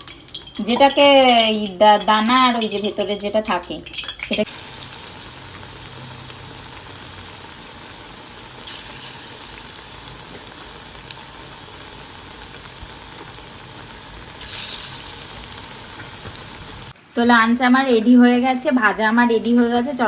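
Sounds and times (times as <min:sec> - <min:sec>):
fritters sizzling in hot oil: 0:00.0 - 0:17.0.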